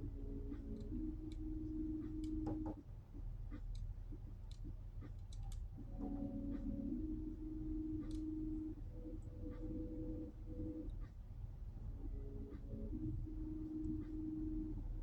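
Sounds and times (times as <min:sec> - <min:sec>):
steady low rumble: 0:00.0 - 0:15.0
light clicks: 0:03.5 - 0:05.8, 0:08.0 - 0:08.3.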